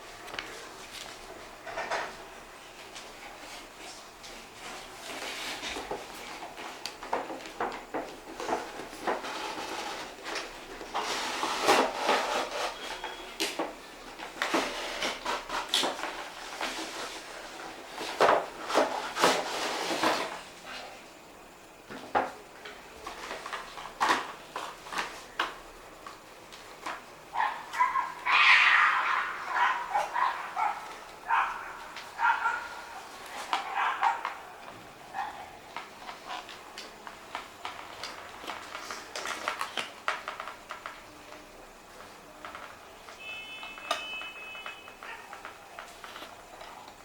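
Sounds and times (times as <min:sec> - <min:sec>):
packaging rustling: 0:35.2 - 0:41.2.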